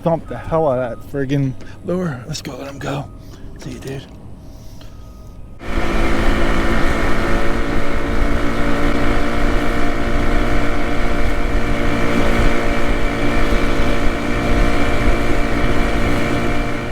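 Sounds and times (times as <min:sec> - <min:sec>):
steady motor hum: 0:00.0 - 0:16.9
wind buffeting microphone: 0:04.1 - 0:16.9.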